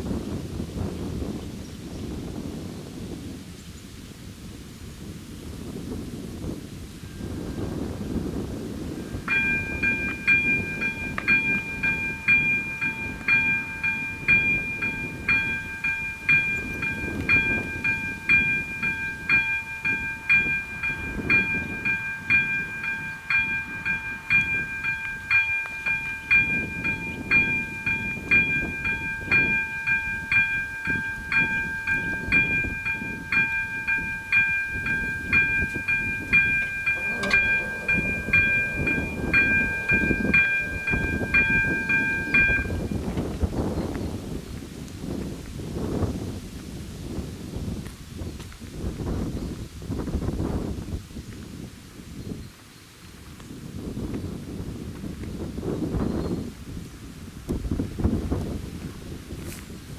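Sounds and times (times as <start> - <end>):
level crossing warning bell dinging: 7.1 - 43.4.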